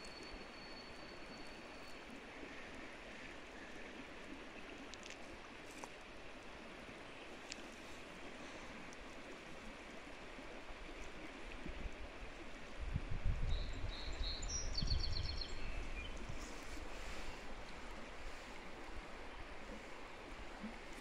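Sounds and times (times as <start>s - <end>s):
small bird singing: 13.5s - 16.2s.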